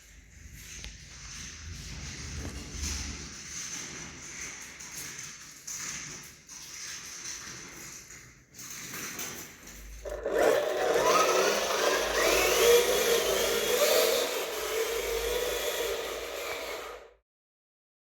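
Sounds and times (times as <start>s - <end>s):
small electric motor whirring: 10.0s - 17.2s.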